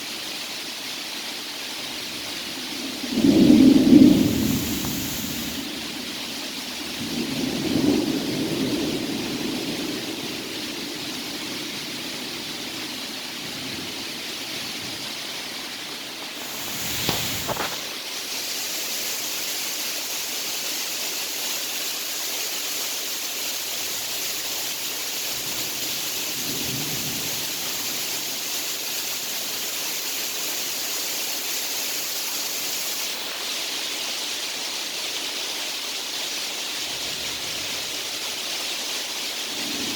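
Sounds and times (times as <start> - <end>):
steady rain hiss: 0.0 - 39.9
thunder rumbling: 1.8 - 14.1, 16.4 - 17.9, 25.4 - 28.2.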